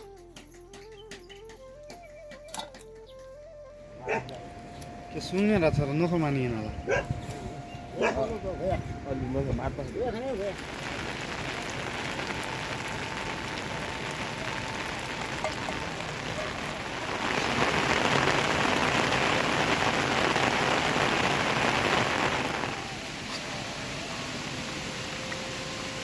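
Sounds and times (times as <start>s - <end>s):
rain falling: 7.5s - 26.0s.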